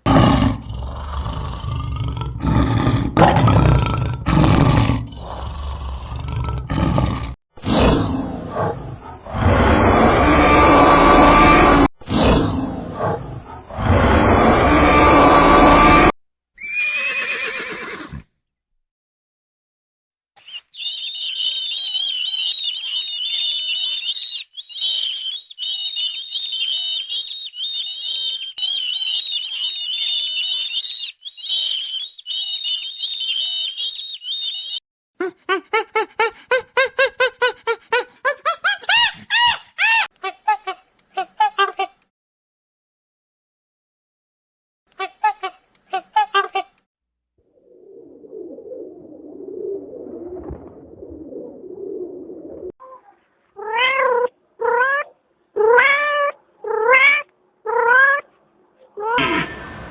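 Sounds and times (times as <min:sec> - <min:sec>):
small birds chirping: 0:20.4 - 0:34.8, 0:59.2 - 0:59.9
animal giving rapid short calls: 0:59.2 - 0:59.9.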